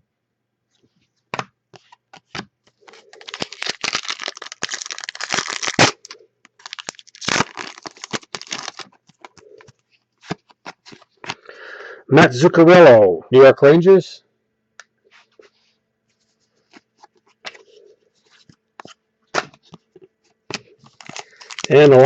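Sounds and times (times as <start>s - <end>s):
wrapper tearing and crinkling: 2.8s - 9.4s, 20.6s - 22.0s.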